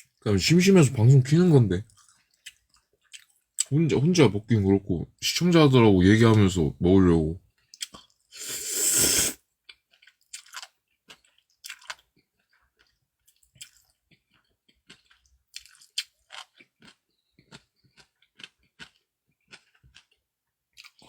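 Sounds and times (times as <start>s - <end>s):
chewing food: 1.8s - 3.8s, 7.5s - 8.8s, 9.4s - 21.0s.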